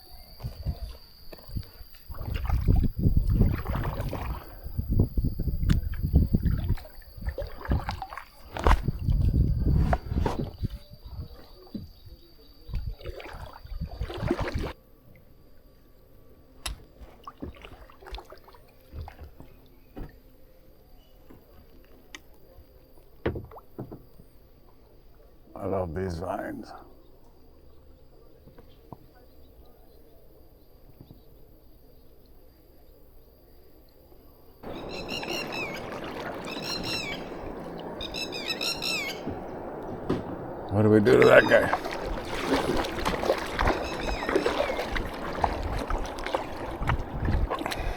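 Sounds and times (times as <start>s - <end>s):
paddle splashes: 0.4s - 12.0s, 12.6s - 14.8s, 16.6s - 20.2s, 34.6s - 47.9s
water dripping and gurgling: 1.3s - 9.5s, 12.7s - 14.8s, 16.6s - 19.5s, 34.6s - 47.9s
bird chirping: 34.6s - 42.2s, 42.9s - 45.6s.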